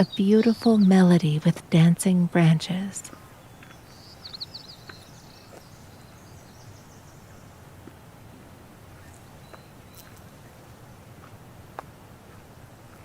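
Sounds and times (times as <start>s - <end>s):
low background rumble: 0.0s - 3.1s
faint bird chirps: 3.2s - 7.6s, 9.0s - 10.6s
bird twittering: 3.4s - 7.5s.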